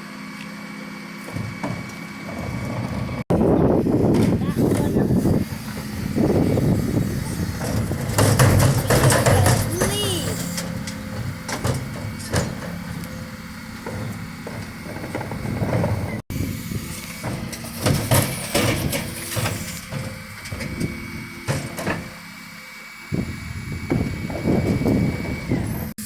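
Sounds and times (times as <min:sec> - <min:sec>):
truck engine hum: 0:00.0 - 0:26.0
bins knocking and banging: 0:01.2 - 0:03.2, 0:07.2 - 0:16.2, 0:17.1 - 0:22.2.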